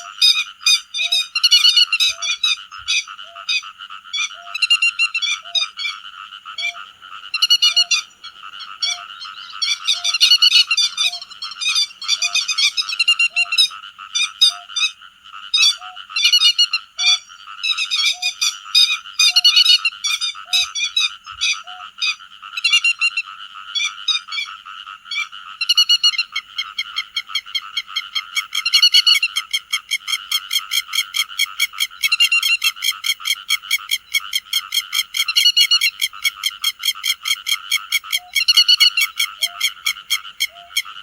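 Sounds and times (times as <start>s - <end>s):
background bird chorus: 0.0s - 41.0s
lapwings sharp high calls: 6.6s - 15.0s.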